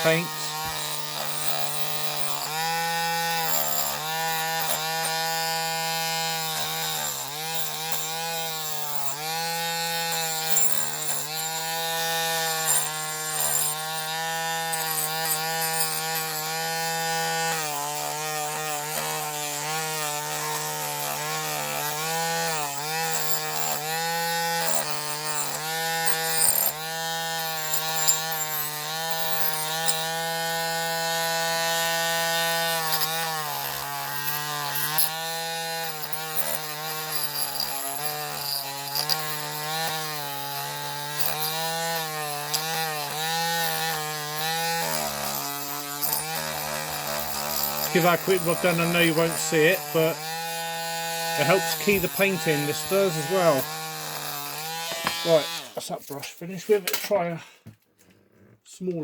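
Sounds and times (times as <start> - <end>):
rotary tool motor: 0.0 - 55.8
wire brush scrubbing metal: 0.0 - 56.7.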